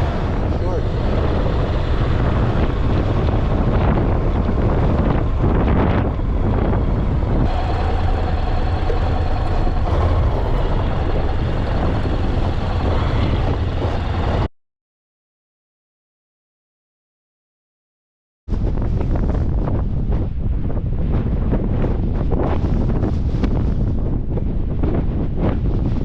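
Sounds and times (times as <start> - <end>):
heavy wind noise: 0.0 - 14.5, 18.5 - 26.0
motorcycle engine rumble: 0.0 - 14.5.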